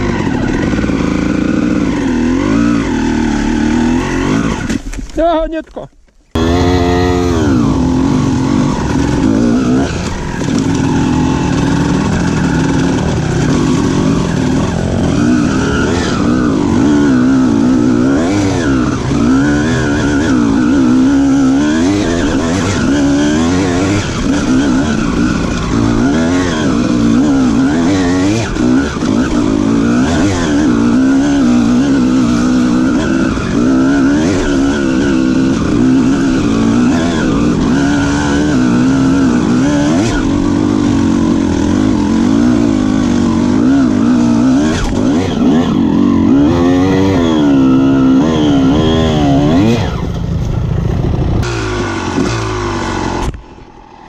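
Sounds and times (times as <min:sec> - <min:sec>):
motorcycle engine revving: 0:00.0 - 0:04.9, 0:06.3 - 0:54.0.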